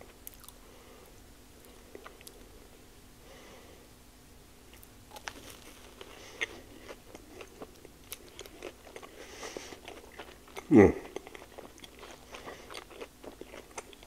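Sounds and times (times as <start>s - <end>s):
person chewing food: 0.0s - 0.7s, 1.6s - 2.5s, 4.7s - 14.0s.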